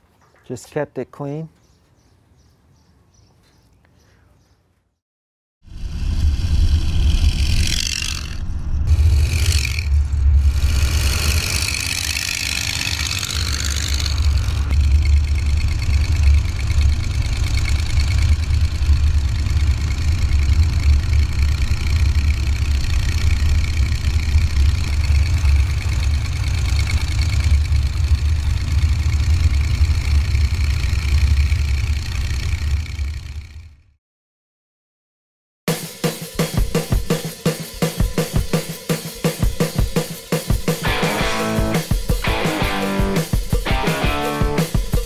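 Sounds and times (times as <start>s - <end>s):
car engine rumbling: 5.8s - 33.8s.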